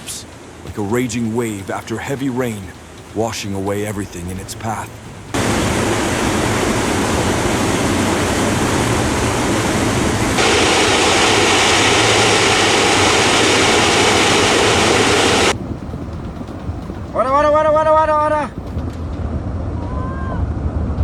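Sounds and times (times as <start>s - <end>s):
debris flow roaring: 4.0s - 15.6s.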